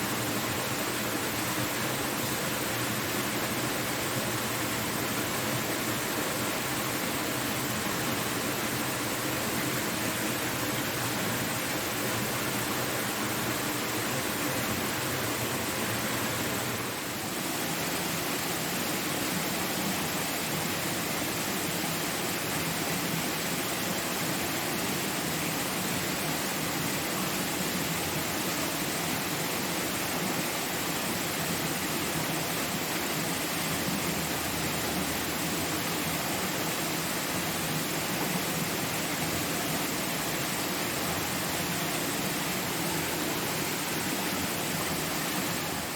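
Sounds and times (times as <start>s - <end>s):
waterfall rushing: 28.2s - 45.9s.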